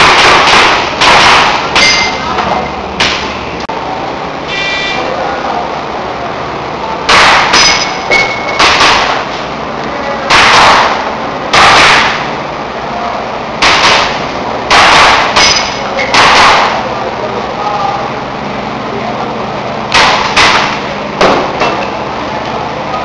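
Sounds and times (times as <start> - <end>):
airsoft pistol shots: 0.0 - 2.1, 7.1 - 9.3, 10.3 - 12.3, 13.6 - 16.8, 19.9 - 21.5.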